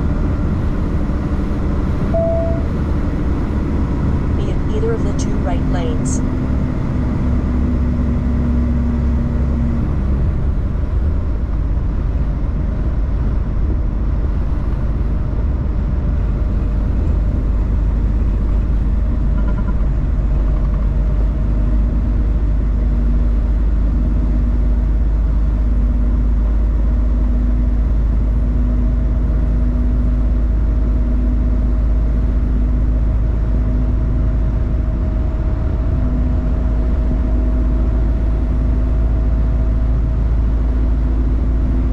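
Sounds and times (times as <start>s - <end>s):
truck engine drone: 0.0s - 41.9s
faint hum: 2.0s - 3.1s, 4.4s - 6.3s.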